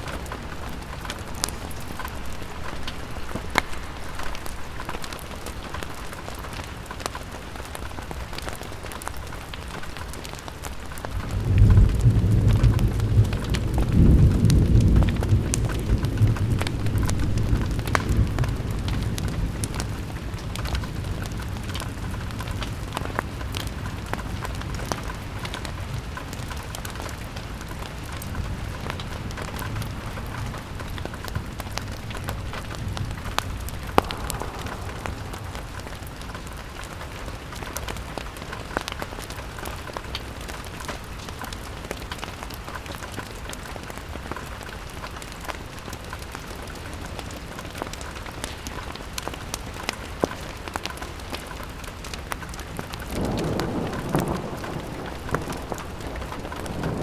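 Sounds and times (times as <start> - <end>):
rain on window glass: 0.0 - 57.0
thunder rumbling: 10.5 - 27.2, 27.8 - 38.4, 52.7 - 57.0.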